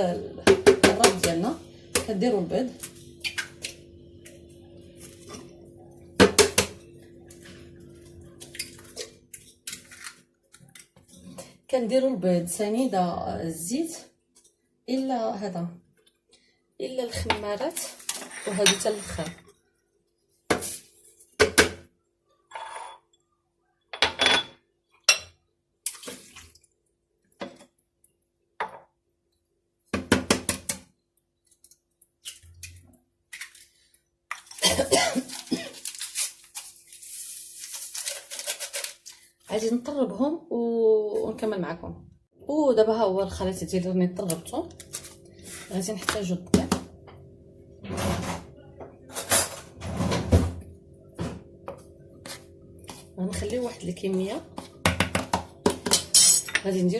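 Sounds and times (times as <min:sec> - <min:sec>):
faint hum: 0:00.0 - 0:09.2
kitchenware clinking on bowl: 0:18.1 - 0:19.5, 0:55.7 - 0:56.8.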